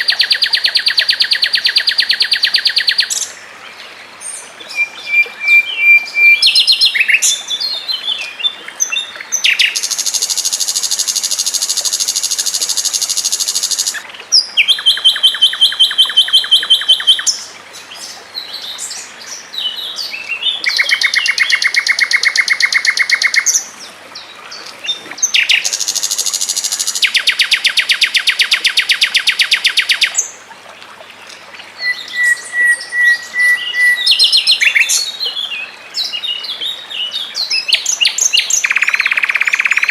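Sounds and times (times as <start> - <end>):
songbird trilling: 4.7 - 7.4, 8.9 - 17.5, 20.6 - 23.6, 31.8 - 35.1, 37.5 - 39.9.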